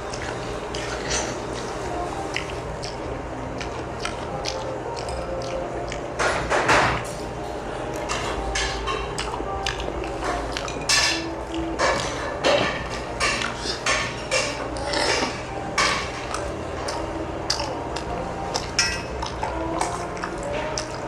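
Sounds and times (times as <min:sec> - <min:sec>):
utensils clinking on dishes: 0:00.1 - 0:01.8, 0:06.2 - 0:21.0.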